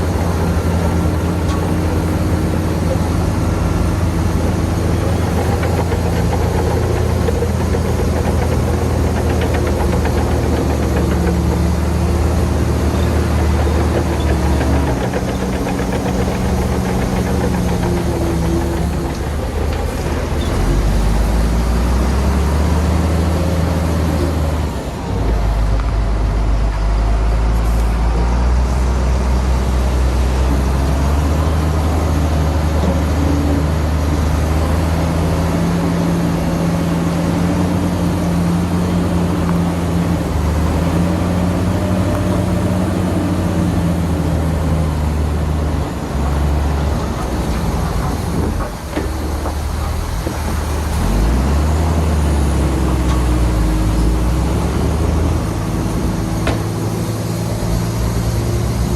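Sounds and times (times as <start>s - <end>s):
heavy diesel engines under load: 0.0s - 58.9s.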